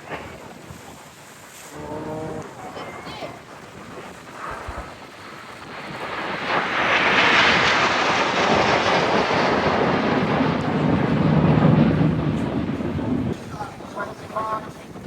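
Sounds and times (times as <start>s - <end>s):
jet aircraft roaring past: 0.0s - 15.0s
deep rumble: 3.4s - 14.8s.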